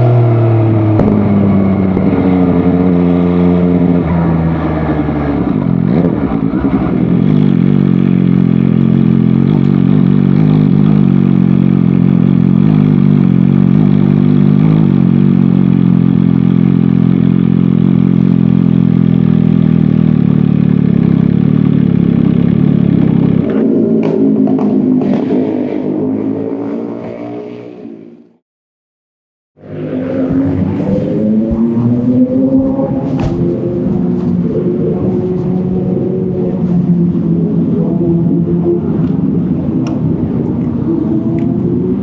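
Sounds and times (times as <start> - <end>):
motorcycle engine running: 0.0 - 26.4, 30.0 - 42.0.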